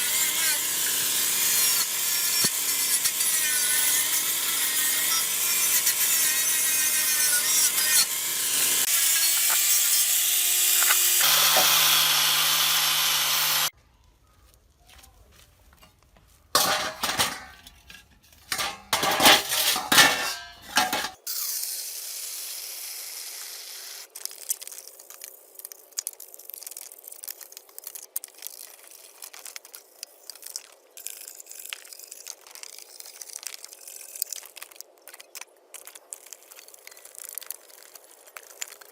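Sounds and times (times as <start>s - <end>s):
loud steady rasping on metal: 0.0s - 13.7s
loud tool strokes: 0.0s - 13.7s.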